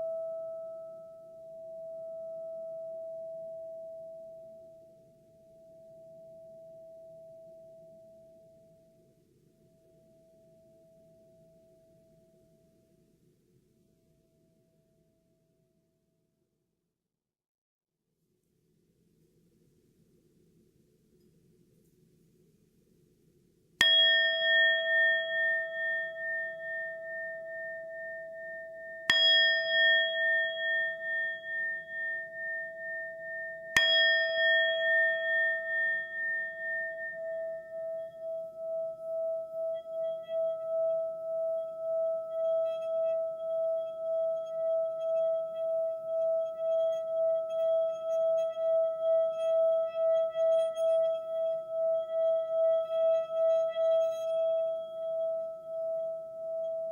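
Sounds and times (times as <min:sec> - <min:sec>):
singing bowl ringing: 0:00.0 - 0:08.8, 0:23.8 - 0:56.9.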